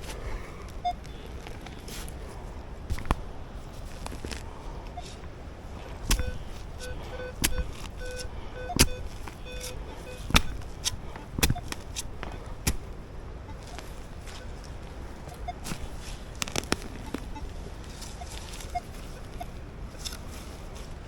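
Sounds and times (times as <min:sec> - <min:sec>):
metal detector pulsing beep: 0:00.8 - 0:01.2, 0:06.1 - 0:16.1, 0:16.7 - 0:17.5, 0:18.1 - 0:19.6
digging tool striking hard ground: 0:02.9 - 0:03.3, 0:06.0 - 0:13.0, 0:15.5 - 0:17.3.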